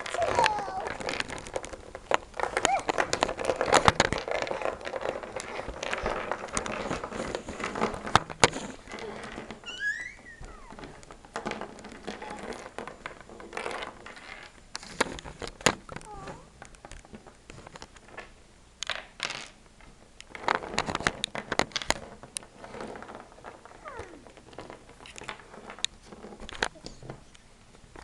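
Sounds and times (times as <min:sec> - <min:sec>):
plastic toy pieces rustling: 0:00.0 - 0:18.3, 0:20.3 - 0:27.2
high gliding squeak: 0:09.6 - 0:10.8.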